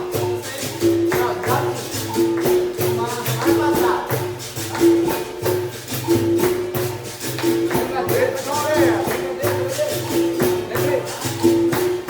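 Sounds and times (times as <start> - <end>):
pandeiro jingles: 0.0 - 12.0.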